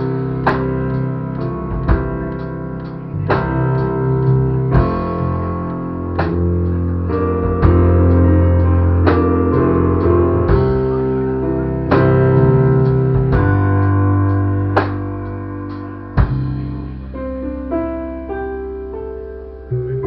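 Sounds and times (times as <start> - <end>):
guitar and keyboard chords ringing: 0.0 - 20.0.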